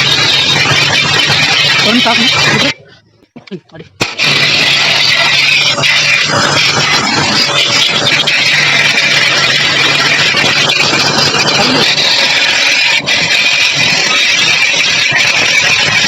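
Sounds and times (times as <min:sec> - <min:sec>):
pressure washer motor humming: 0:00.0 - 0:02.8, 0:04.0 - 0:16.0
water spray hissing: 0:04.0 - 0:16.0.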